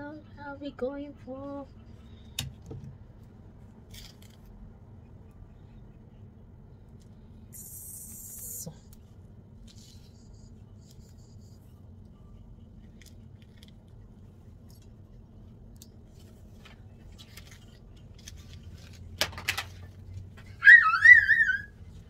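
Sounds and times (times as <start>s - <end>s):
low hum: 0.0s - 22.0s
scrape: 9.7s - 11.6s.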